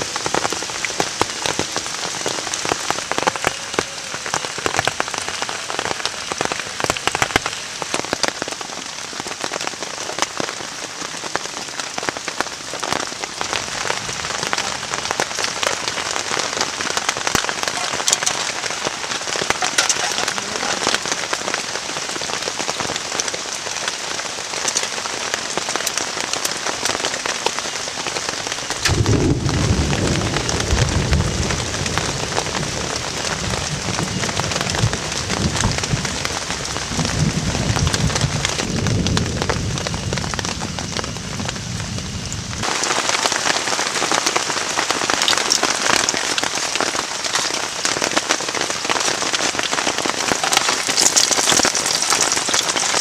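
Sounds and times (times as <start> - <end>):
heavy rain falling: 0.0 - 53.0
rolling thunder: 28.7 - 42.7.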